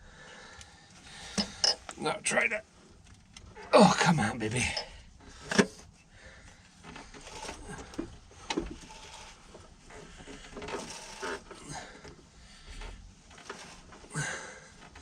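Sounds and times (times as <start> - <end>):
faint rustling: 6.0 - 15.0.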